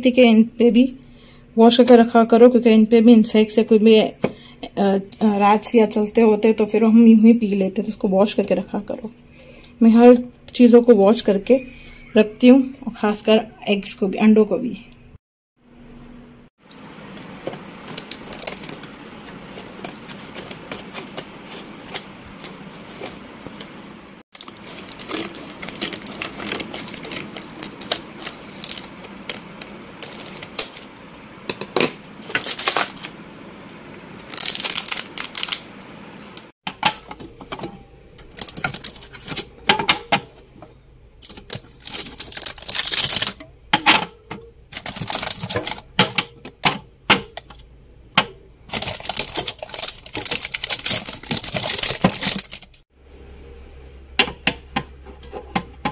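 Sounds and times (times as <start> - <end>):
household items clattering: 17.1 - 23.8, 24.4 - 30.8, 36.6 - 47.6, 48.2 - 52.8.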